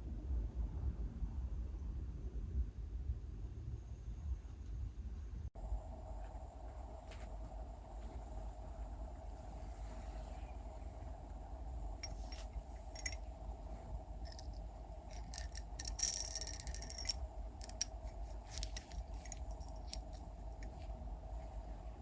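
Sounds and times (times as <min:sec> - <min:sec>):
steady hum: 0:05.6 - 0:22.0
bright metallic rattle: 0:12.0 - 0:13.2, 0:14.3 - 0:20.7
metal parts clicking and clinking: 0:12.0 - 0:13.2, 0:14.2 - 0:20.8.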